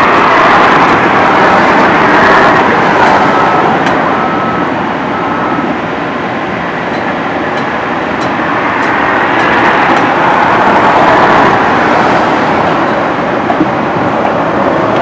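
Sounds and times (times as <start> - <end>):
moving train rumble: 0.0 - 15.0.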